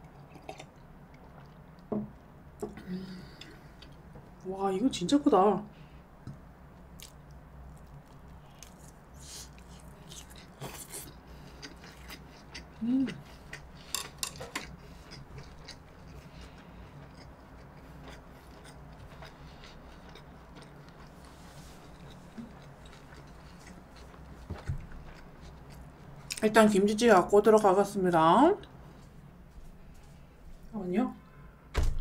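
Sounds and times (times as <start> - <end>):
wet chewing mouth sounds: 7.8 - 13.9, 14.6 - 26.4
person humming: 12.8 - 13.2.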